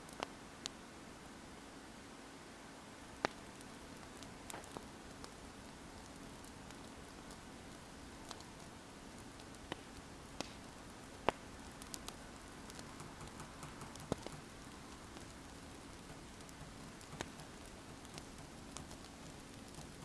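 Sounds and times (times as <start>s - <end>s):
wood fire crackling: 0.0s - 2.0s, 2.7s - 20.0s.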